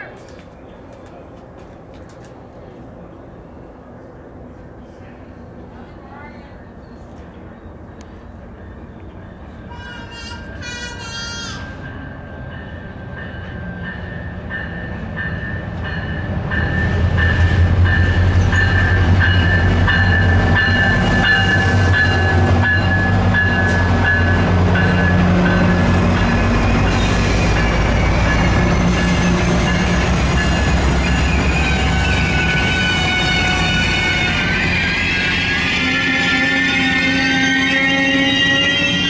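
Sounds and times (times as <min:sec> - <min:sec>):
diesel locomotive rumble: 0:07.9 - 0:35.9.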